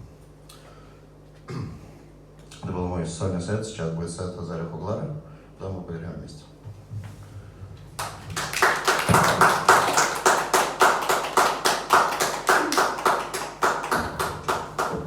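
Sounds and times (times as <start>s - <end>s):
small audience clapping: 7.9s - 15.0s.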